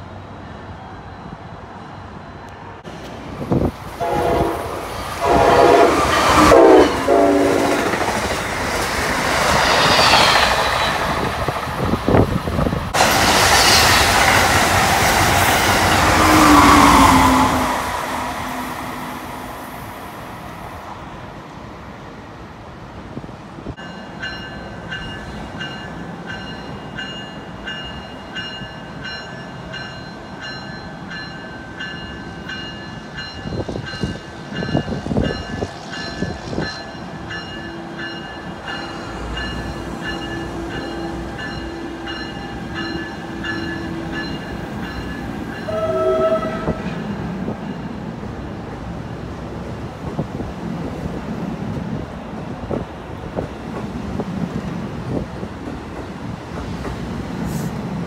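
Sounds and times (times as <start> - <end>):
train passing at speed: 0.0 - 58.0
train horn: 4.0 - 8.0, 16.0 - 19.2, 45.6 - 47.1
locomotive bell ringing: 23.8 - 47.9.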